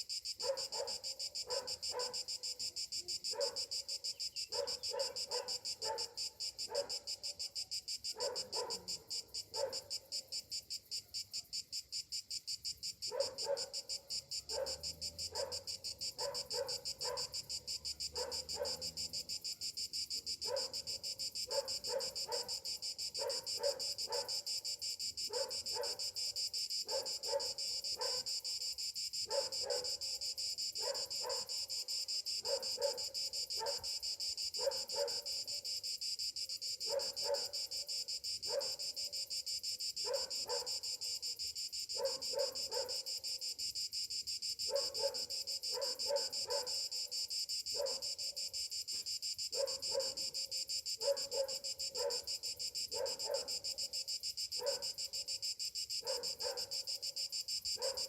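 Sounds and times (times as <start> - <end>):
cicadas droning: 0.0 - 58.0.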